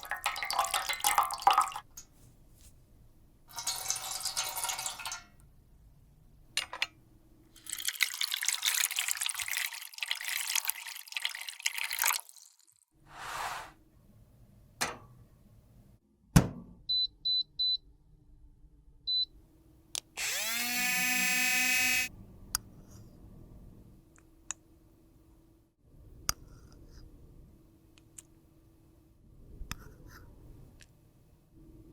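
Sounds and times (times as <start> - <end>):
small electric motor whirring: 20.2 - 22.1
click: 24.1 - 24.6.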